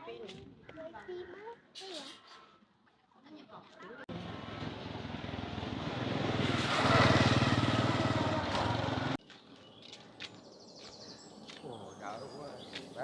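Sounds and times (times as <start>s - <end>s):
small engine running: 4.1s - 9.2s.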